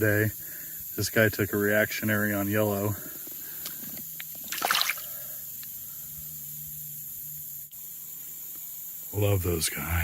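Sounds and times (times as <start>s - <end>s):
faint steady hiss: 0.0s - 10.0s
water splashing and sloshing: 4.4s - 5.1s.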